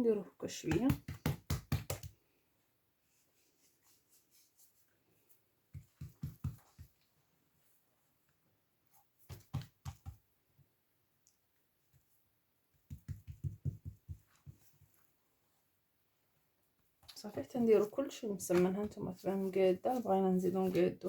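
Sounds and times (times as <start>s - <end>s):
hands patting dough: 0.5s - 2.3s, 5.6s - 7.1s, 9.2s - 10.3s, 12.7s - 15.1s.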